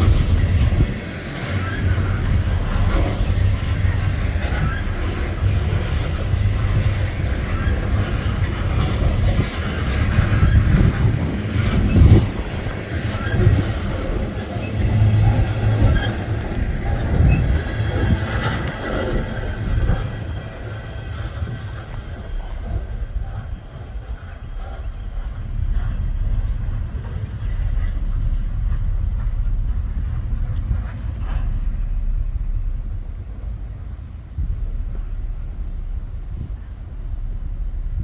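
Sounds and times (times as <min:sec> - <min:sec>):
high wheel squeal: 0:00.0 - 0:28.8
rail clicks: 0:00.0 - 0:38.0
train wheels rumbling on rail: 0:00.0 - 0:38.0.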